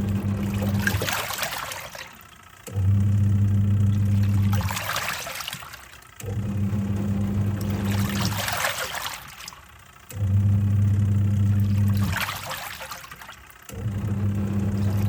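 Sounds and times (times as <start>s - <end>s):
washing machine motor humming: 0.0s - 15.0s
water swishing: 0.4s - 2.3s, 4.0s - 6.0s, 7.7s - 9.6s, 11.8s - 13.4s.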